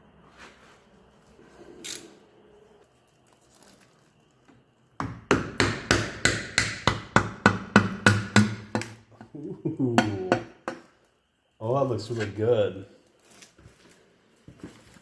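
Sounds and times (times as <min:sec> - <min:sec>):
loud sharp knocks: 0:05.0 - 0:09.0.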